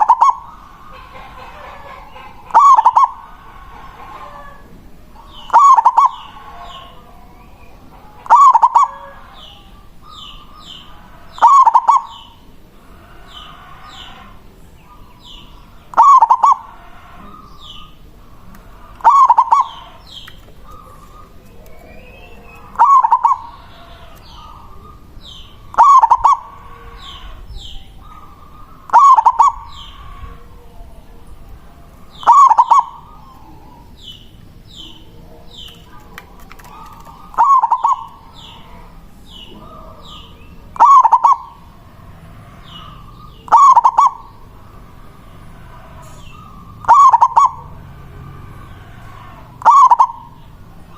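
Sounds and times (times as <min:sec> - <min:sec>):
dove cooing song: 0:00.0 - 0:50.9.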